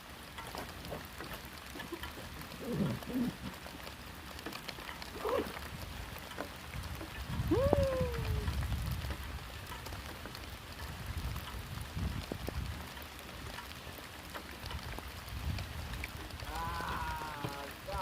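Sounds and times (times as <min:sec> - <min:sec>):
heavy rain falling: 0:00.0 - 0:18.0
wind buffeting microphone: 0:05.0 - 0:18.0.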